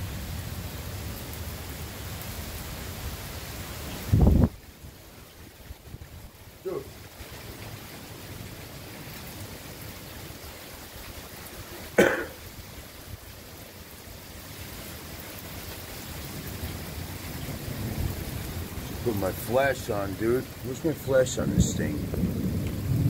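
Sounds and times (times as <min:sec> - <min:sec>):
heavy rain pouring: 0:00.0 - 0:23.0
person coughing: 0:11.9 - 0:12.4
low rumble of thunder: 0:16.2 - 0:23.0.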